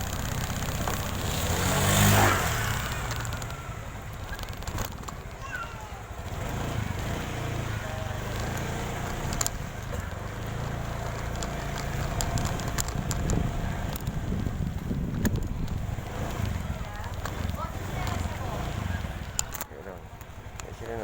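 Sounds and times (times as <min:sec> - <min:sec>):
small motorcycle engine running: 0:00.0 - 0:21.0.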